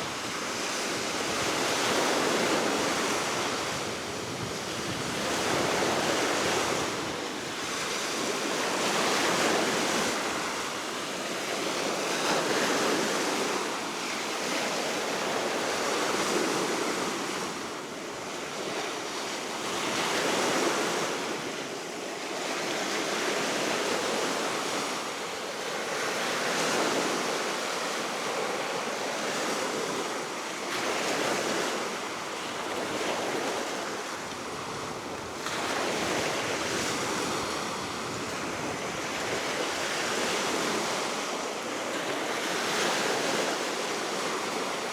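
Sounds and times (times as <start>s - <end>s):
steady wind: 23.8s - 44.9s.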